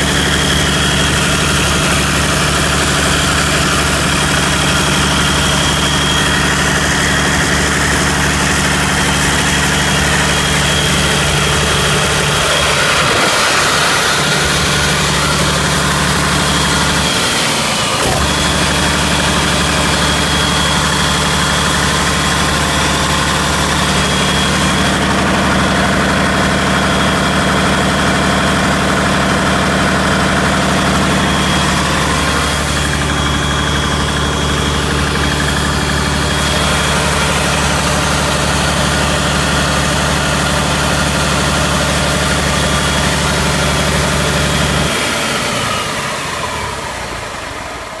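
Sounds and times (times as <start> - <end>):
high whine: 0.0 - 45.6
diesel engine idling: 0.0 - 48.0.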